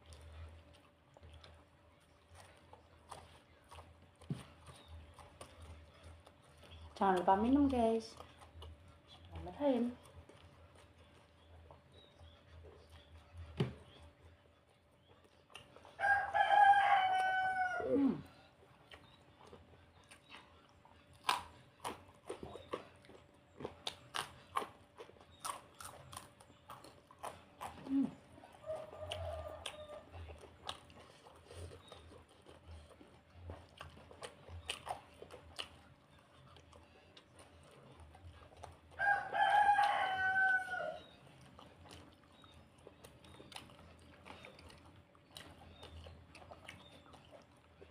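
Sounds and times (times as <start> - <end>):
rooster crowing: 16.0 - 18.2, 28.6 - 30.1, 39.0 - 41.2
eating clicks and smacks: 18.6 - 40.0, 41.0 - 47.9.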